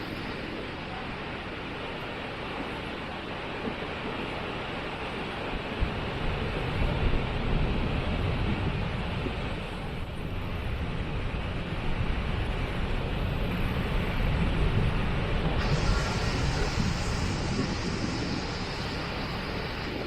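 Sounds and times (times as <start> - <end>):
waterfall rushing: 15.6 - 20.0.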